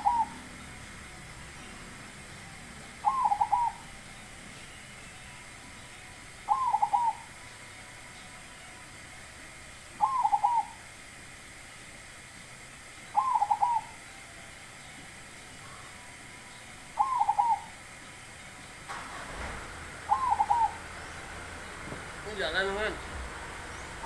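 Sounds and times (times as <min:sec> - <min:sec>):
dove cooing: 0:00.0 - 0:01.0, 0:02.8 - 0:04.2, 0:06.3 - 0:07.5, 0:09.9 - 0:11.0, 0:13.1 - 0:14.1, 0:16.8 - 0:24.0.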